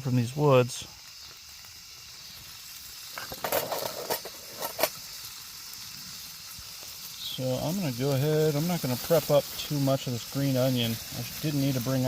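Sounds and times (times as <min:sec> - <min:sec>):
bacon sizzling over a campfire: 0:00.0 - 0:12.0
sharp fire pops: 0:01.1 - 0:07.0.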